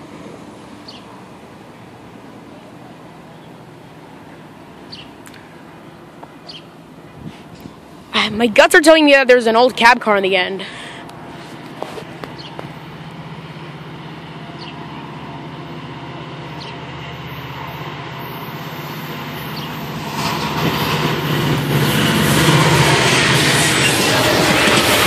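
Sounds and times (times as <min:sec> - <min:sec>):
train passing with rail noise: 0:00.0 - 0:25.0
wheels clattering over rails: 0:10.9 - 0:25.0.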